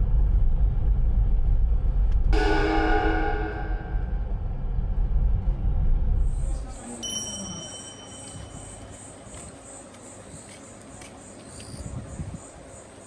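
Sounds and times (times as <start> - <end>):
steady high tone: 2.4 - 4.7
insects chirping: 6.3 - 13.0.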